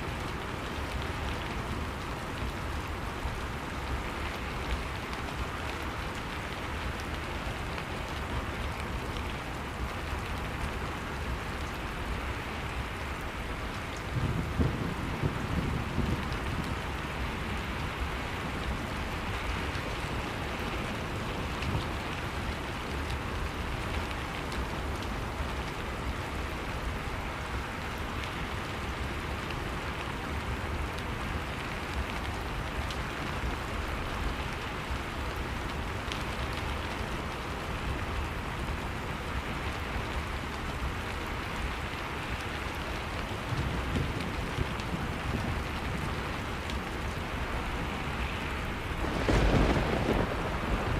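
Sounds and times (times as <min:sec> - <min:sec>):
steady rainfall: 0:00.0 - 0:50.9.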